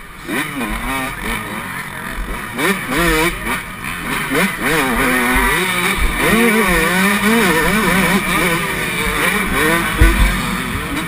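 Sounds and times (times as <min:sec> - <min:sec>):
motocross engine revving: 0:00.0 - 0:11.0
heavy low thump: 0:09.9 - 0:10.9.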